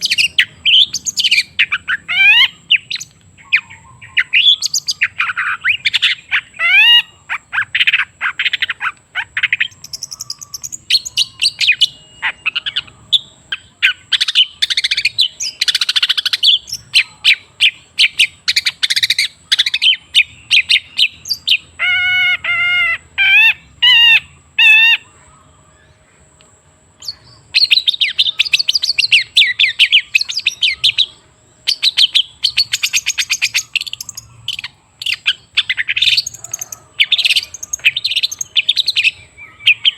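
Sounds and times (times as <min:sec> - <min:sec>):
shrike singing chattering song: 0:00.0 - 0:39.9.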